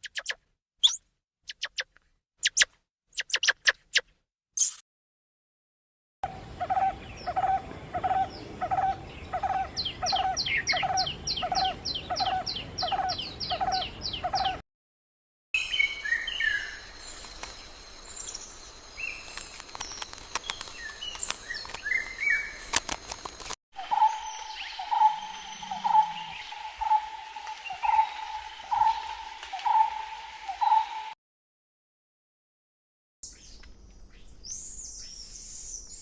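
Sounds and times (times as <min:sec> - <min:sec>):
high bird chirps and clicks: 0:00.0 - 0:04.8, 0:17.1 - 0:17.7, 0:19.2 - 0:23.6
bird calls repeated steadily: 0:06.3 - 0:14.6, 0:15.6 - 0:22.9, 0:23.8 - 0:31.2
rapidly repeated bird calls: 0:06.6 - 0:14.6.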